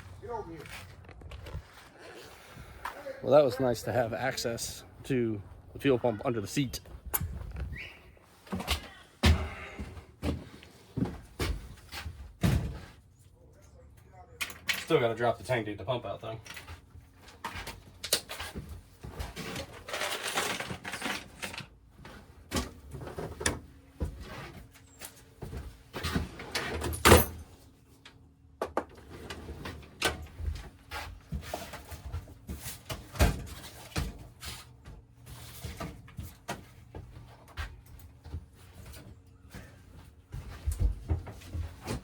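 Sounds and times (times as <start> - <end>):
knocks and rustling of handling: 16.4 - 42.0.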